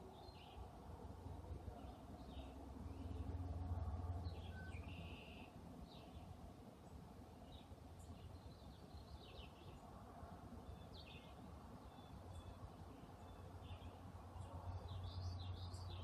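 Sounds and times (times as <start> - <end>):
faint bird chirps: 4.2 - 6.2.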